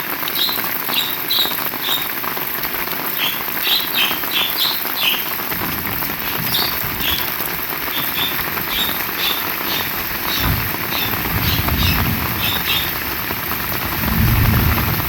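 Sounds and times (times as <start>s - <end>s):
rain falling: 0.0s - 15.0s
high chirps: 0.4s - 2.2s, 3.1s - 14.1s
low rumble: 5.5s - 15.0s.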